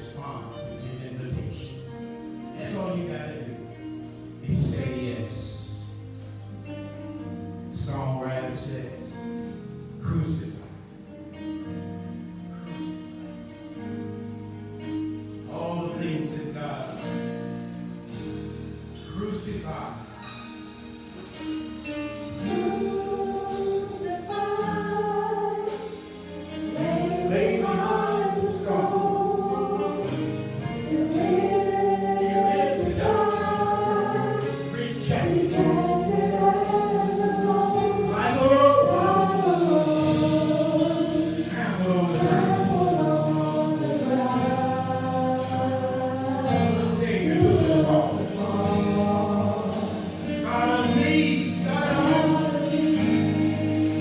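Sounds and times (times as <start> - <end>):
gospel choir singing: 0.0 - 10.4, 11.0 - 54.0
instrumental accompaniment: 0.0 - 54.0.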